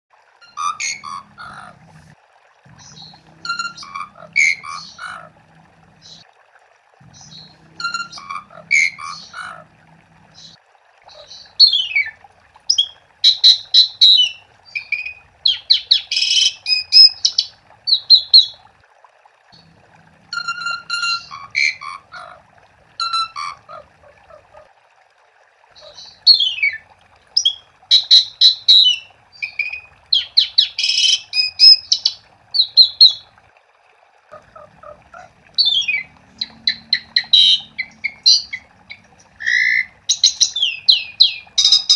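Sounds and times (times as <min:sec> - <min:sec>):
starling singing: 0:00.4 - 0:01.8, 0:02.7 - 0:05.4, 0:07.0 - 0:09.7, 0:10.3 - 0:18.6, 0:20.3 - 0:22.4, 0:27.4 - 0:33.2, 0:34.3 - 0:41.9.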